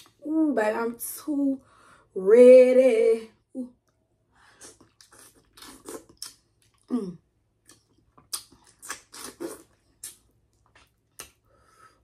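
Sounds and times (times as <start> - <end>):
wet chewing and lip smacking: 4.5 - 6.9, 7.6 - 11.5.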